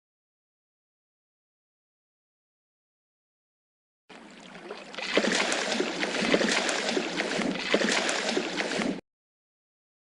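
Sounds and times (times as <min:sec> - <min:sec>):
fish splashing in water: 0:04.1 - 0:09.0.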